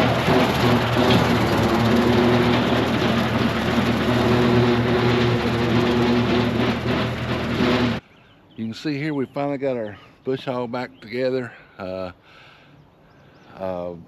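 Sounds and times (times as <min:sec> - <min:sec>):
tractor with rotary cutter running: 0:00.0 - 0:08.0.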